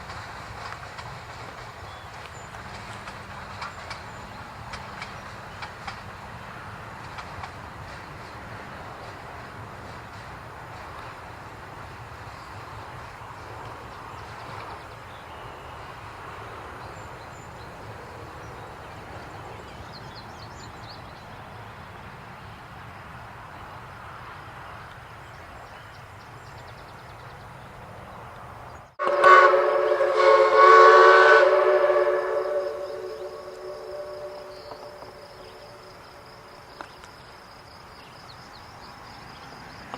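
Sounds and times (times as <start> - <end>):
steam train rumbling: 0.0 - 39.9
steam whistle chord: 29.0 - 35.8.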